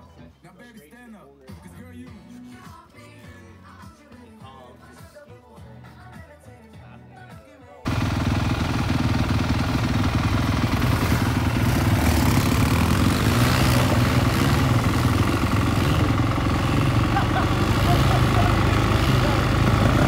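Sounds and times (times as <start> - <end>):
dirt bike engine idling: 7.9 - 20.0.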